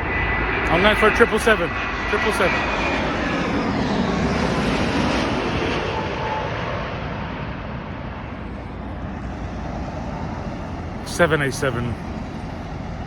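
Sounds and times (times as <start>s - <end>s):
jet engine passing by: 0.0s - 13.0s.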